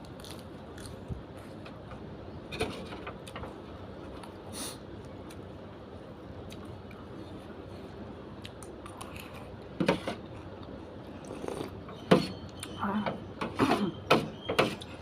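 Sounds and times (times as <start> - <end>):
person chewing and biting food: 0.0 - 1.6, 6.4 - 7.5, 8.3 - 9.6, 10.2 - 11.9.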